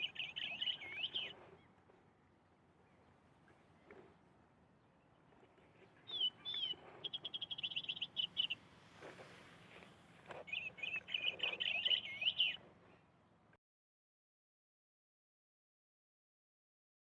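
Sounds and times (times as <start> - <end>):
bird chirps and trills: 0.0 - 1.4, 6.0 - 8.6, 10.5 - 12.6.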